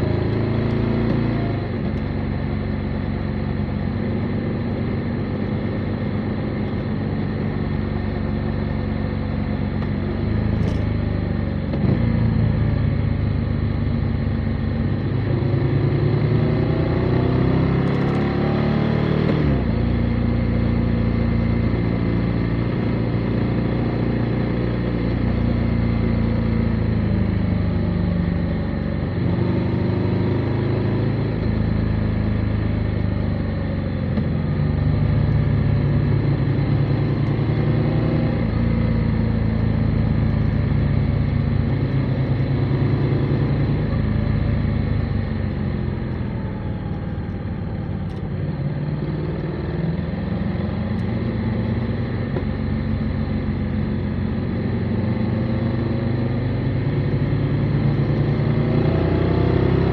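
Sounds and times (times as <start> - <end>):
motorcycle engine running: 19.3 - 59.9.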